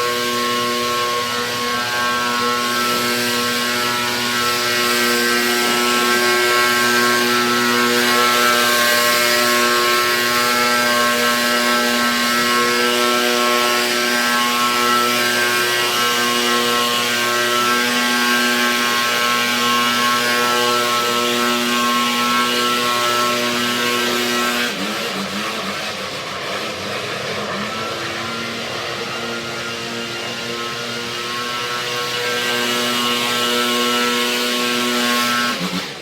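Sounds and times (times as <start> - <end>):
small gas engine running: 0.0 - 36.0.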